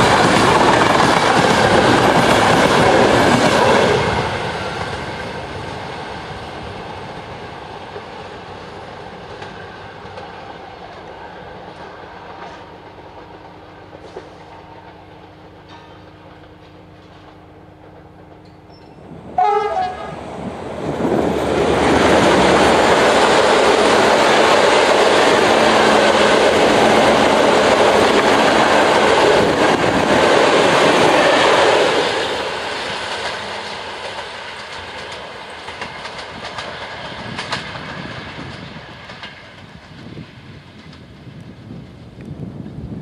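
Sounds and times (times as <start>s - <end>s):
train wheels on rails: 0.0s - 43.0s
train horn blast: 19.3s - 20.2s.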